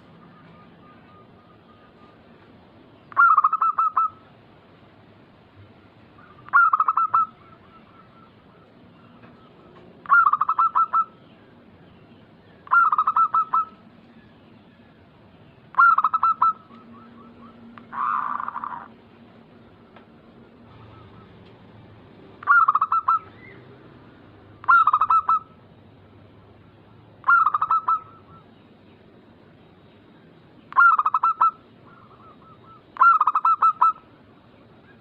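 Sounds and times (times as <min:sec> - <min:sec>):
rough noisy bird call: 0:00.0 - 0:04.4, 0:05.6 - 0:35.0
dove cooing: 0:03.1 - 0:04.2, 0:06.2 - 0:11.2, 0:12.6 - 0:13.8, 0:15.7 - 0:19.0, 0:20.6 - 0:23.7, 0:24.5 - 0:25.6, 0:27.2 - 0:28.5, 0:30.7 - 0:34.1.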